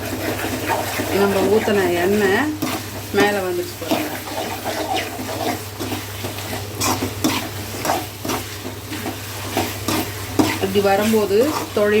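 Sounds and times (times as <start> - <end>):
chicken sizzling in oil: 0.0 - 12.0
spoon scraping a pan: 0.0 - 12.0.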